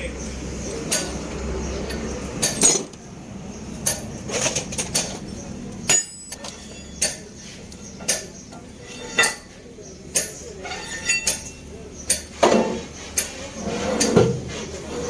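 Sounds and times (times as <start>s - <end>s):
metal striking metal: 5.9s - 7.2s.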